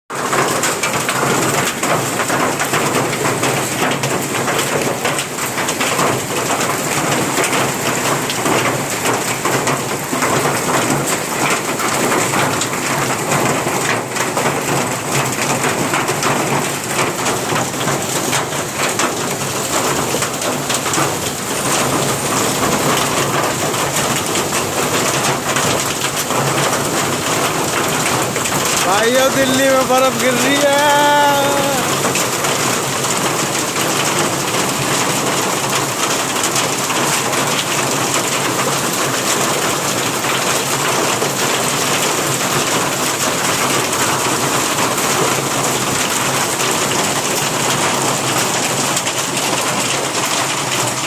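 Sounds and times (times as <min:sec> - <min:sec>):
hailstones striking surfaces: 0:00.2 - 0:51.0
heavy rain hiss: 0:18.1 - 0:41.7.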